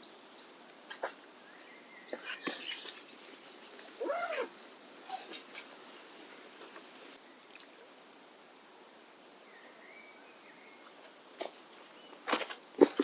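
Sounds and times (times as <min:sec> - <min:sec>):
steady low hiss: 0:00.0 - 0:13.0
faint high calls: 0:03.6 - 0:05.7.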